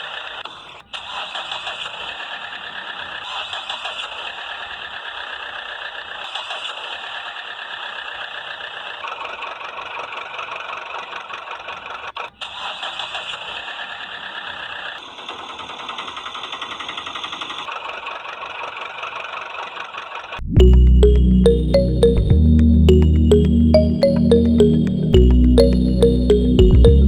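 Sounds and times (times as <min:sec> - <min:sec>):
loud music: 0:20.6 - 0:27.0.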